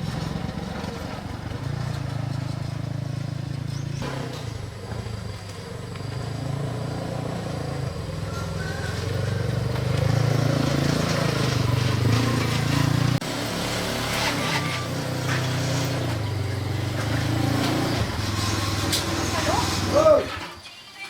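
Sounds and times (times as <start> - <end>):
motorcycle engine running: 0.0 - 20.4.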